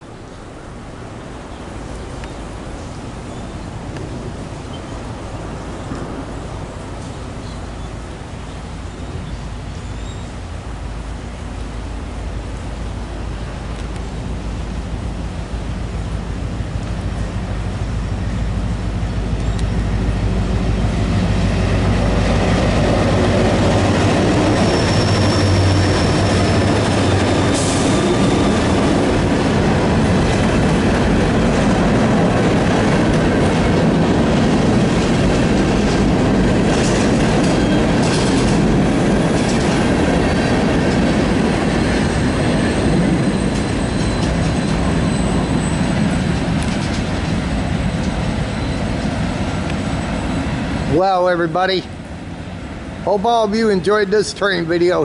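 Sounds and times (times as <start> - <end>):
diesel locomotives rumbling: 0.0 - 55.0
high wheel squeals: 23.5 - 29.0, 37.4 - 38.2, 41.6 - 50.9.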